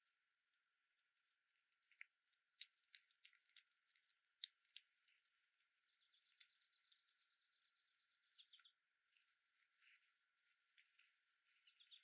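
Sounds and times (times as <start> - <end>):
songbird trilling: 5.9 - 8.7, 11.5 - 12.0
short bird chirps: 11.6 - 12.0.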